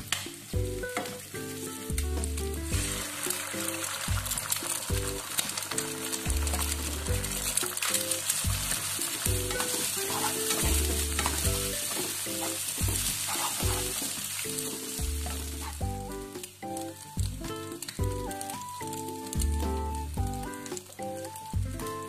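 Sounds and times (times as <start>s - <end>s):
egg and vegetables sizzling: 0.0s - 22.0s
wooden spatula stirring: 2.2s - 15.9s.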